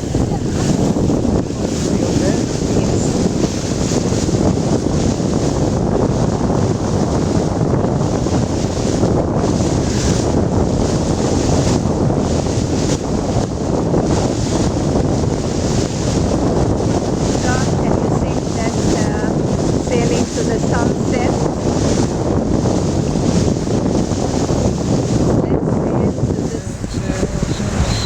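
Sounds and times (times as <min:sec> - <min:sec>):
water washing past boat: 0:00.0 - 0:28.0
wind buffeting microphone: 0:00.0 - 0:28.0.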